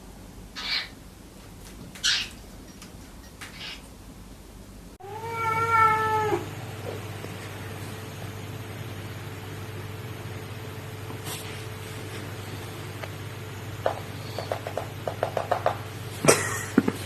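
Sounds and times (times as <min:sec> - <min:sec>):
cat meowing: 0:05.0 - 0:06.5.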